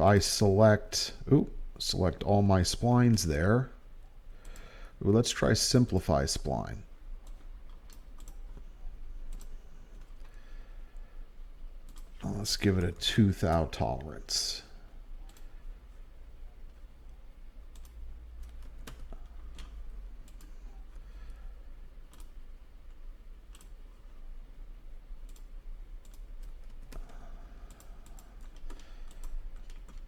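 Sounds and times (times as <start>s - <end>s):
steady low hum: 0.0s - 30.0s
keyboard and mouse clicks: 7.2s - 10.4s, 11.8s - 12.2s, 17.7s - 20.6s, 22.1s - 22.4s, 23.5s - 23.8s, 25.2s - 30.0s.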